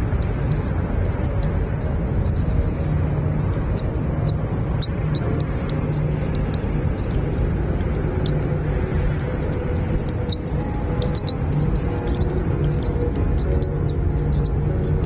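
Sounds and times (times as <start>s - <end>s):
steady low rumbling: 0.0s - 15.0s
faint bird chirps: 7.7s - 15.0s.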